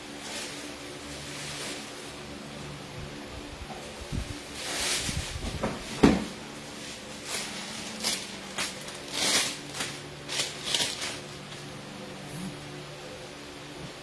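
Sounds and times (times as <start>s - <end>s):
low hum: 6.8s - 13.9s.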